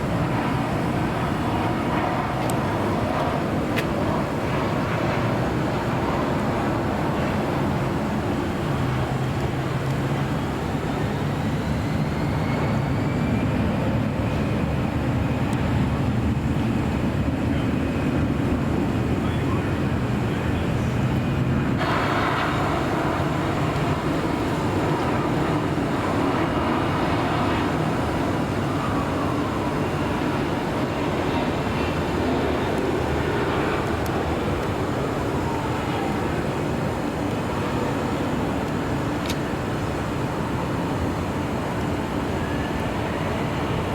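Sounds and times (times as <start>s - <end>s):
jet airliner engine rumble: 0.0s - 43.9s
faint whining tones falling: 21.7s - 43.9s.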